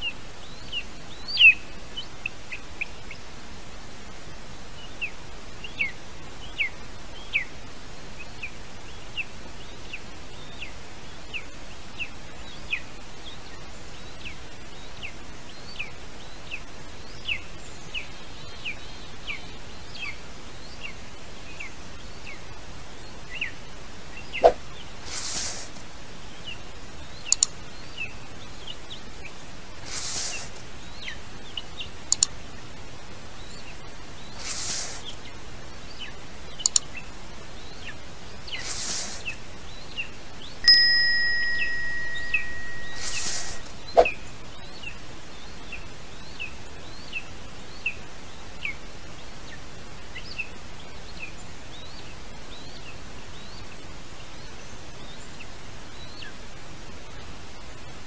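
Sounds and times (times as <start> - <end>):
light hiss: 0.0 - 58.0
bell chime: 40.6 - 43.7
bird chirps: 40.6 - 44.2.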